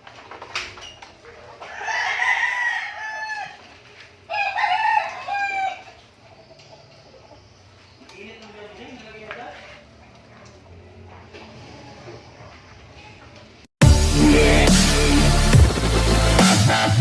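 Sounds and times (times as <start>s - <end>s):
rooster crowing: 1.6s - 3.7s, 4.3s - 6.0s.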